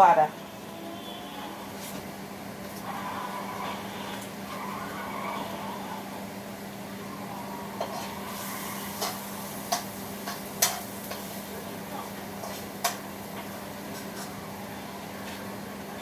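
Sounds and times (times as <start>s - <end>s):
utensils clicking on pan: 7.8s - 11.6s, 12.3s - 14.3s.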